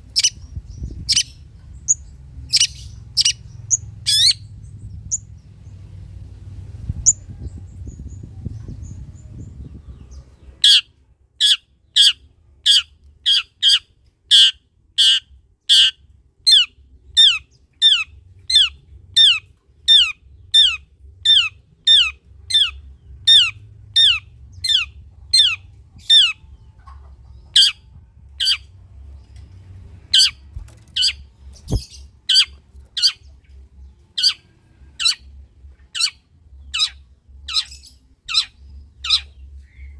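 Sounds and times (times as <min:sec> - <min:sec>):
low rumbling hum: 0:00.0 - 0:11.3, 0:14.8 - 0:39.9
bird calling harsh sharp notes: 0:02.5 - 0:04.4, 0:10.6 - 0:25.6.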